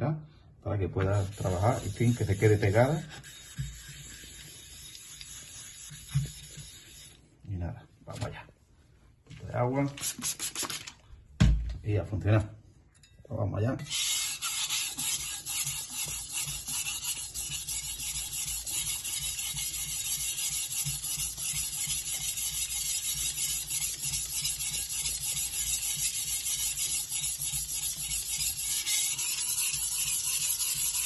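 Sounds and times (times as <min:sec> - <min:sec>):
cleaver scraping on whetstone: 0:01.0 - 0:07.2, 0:13.9 - 0:31.0.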